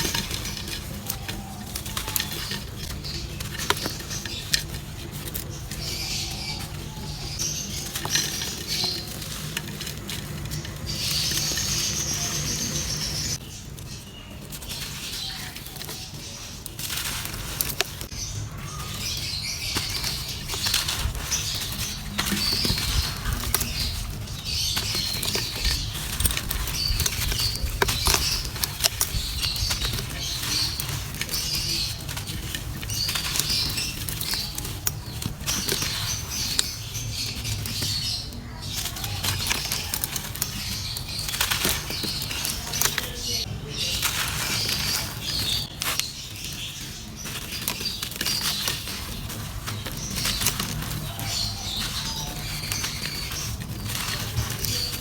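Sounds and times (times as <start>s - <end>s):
dry clay crumbling and crunching: 0.0s - 55.0s.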